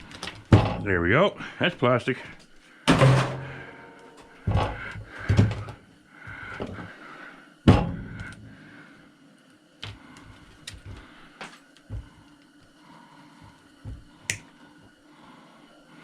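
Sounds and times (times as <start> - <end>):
saw parts knocking and clunking: 0.1 - 0.9, 2.9 - 5.8, 7.7 - 8.4.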